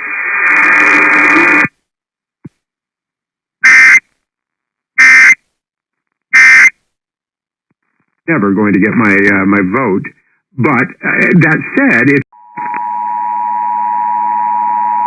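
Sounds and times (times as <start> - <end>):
broadcast audio: 0.0 - 1.8, 7.8 - 12.8.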